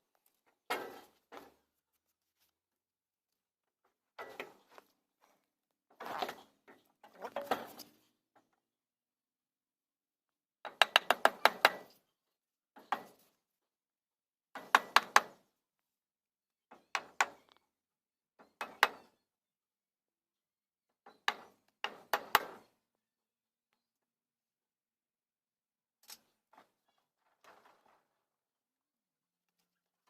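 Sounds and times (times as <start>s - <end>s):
tool knocking on wood: 14.6s - 15.4s.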